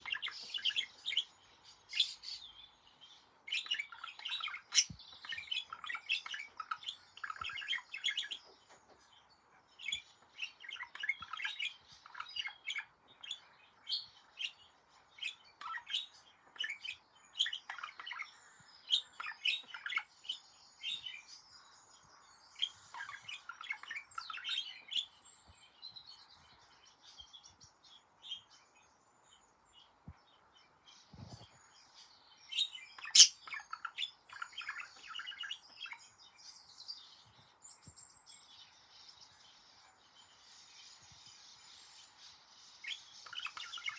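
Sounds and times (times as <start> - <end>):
budgerigar warbling: 33.1 - 33.4.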